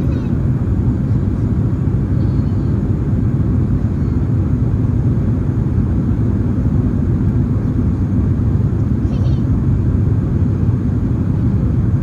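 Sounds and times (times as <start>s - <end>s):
airliner cabin engine rumble: 0.0s - 12.0s.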